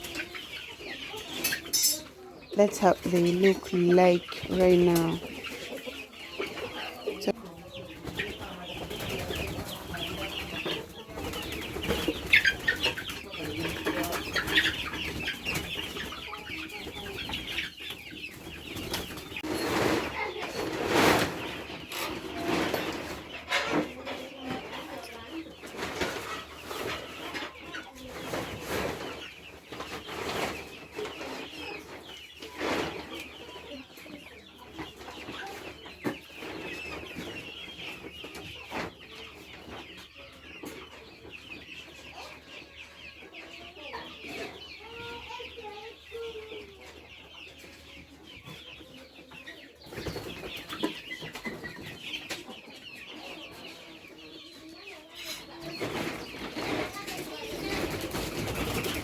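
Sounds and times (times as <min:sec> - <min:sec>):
chickens clucking and cheeping: 0:00.0 - 0:59.0.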